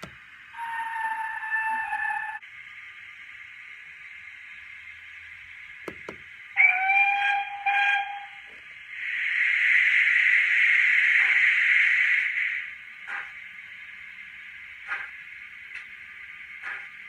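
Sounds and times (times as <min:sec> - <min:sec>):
model train steam whistle: 0:00.5 - 0:02.4, 0:06.6 - 0:08.5
steam hiss: 0:08.8 - 0:17.0.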